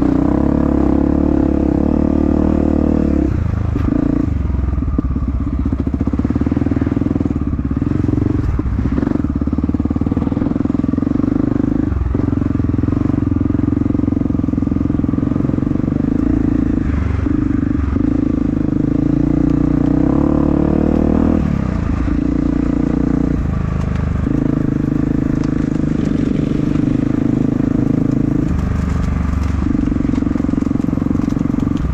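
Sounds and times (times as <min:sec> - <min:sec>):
dirt bike engine revving: 0:15.2 - 0:23.4.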